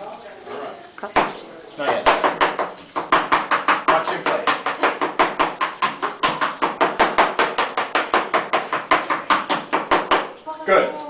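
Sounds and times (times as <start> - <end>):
knife chopping spinach: 1.9 - 10.3.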